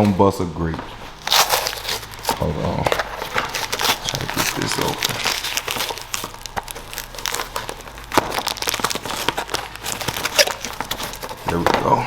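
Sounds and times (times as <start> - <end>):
packaging crinkling and tearing: 1.0 - 12.0.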